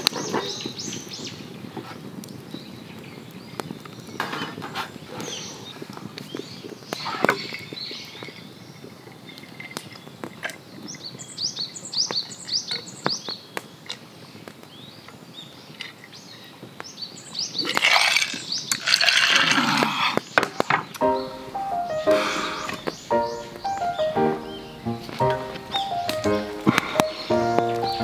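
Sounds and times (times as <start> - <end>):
small bird chirping: 5.0 - 19.0, 20.3 - 28.0.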